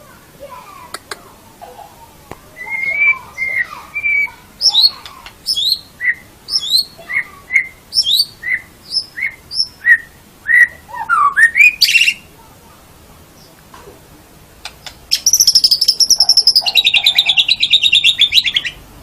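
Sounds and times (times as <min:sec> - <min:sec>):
bird singing whistled phrases: 0:02.6 - 0:12.3, 0:15.1 - 0:18.8.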